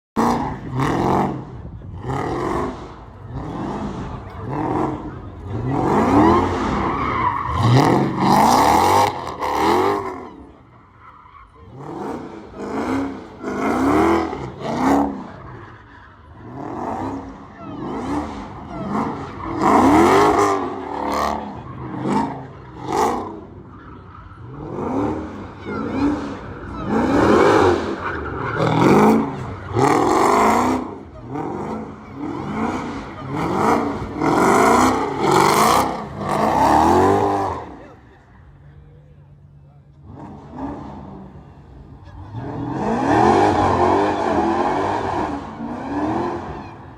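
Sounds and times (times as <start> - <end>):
car engine revving: 0.2 - 10.8, 11.5 - 38.6, 39.4 - 46.9.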